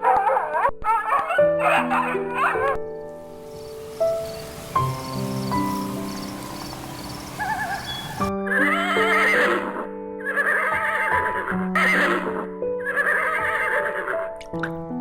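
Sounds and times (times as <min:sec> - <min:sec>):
background music with held notes: 0:00.0 - 0:15.0
horse whinnying: 0:07.4 - 0:14.2.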